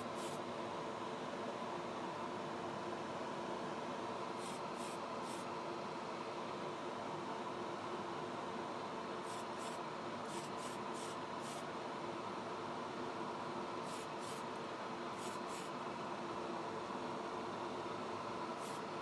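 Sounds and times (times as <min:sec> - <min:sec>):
spray booth fan hum: 0:13.8 - 0:15.8
paint spraying hisses: 0:13.9 - 0:14.4, 0:15.2 - 0:15.7, 0:18.6 - 0:18.8.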